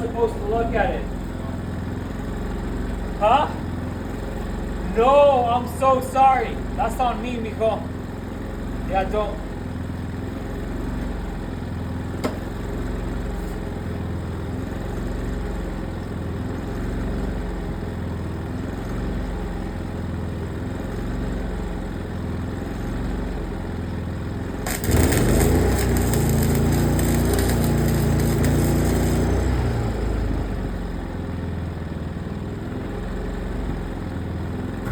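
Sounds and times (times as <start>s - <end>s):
engine idling: 0.0s - 34.9s
welding arc crackling hiss: 24.6s - 29.9s.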